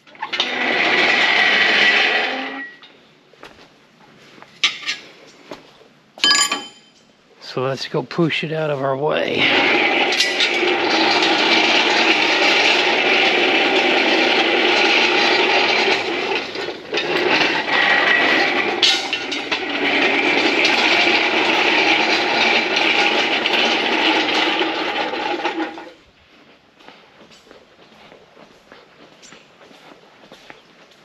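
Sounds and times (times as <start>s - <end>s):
caster wheels rattling on floor: 9.4s - 26.0s.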